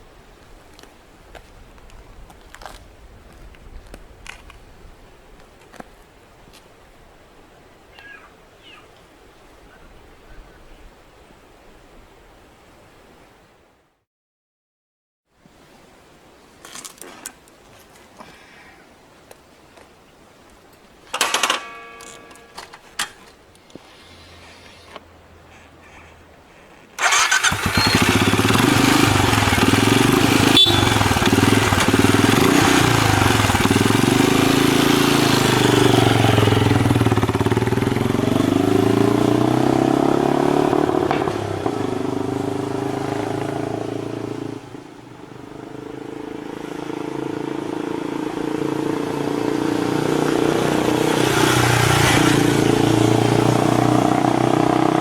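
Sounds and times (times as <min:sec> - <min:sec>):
motorcycle engine revving: 0:27.0 - 0:55.0.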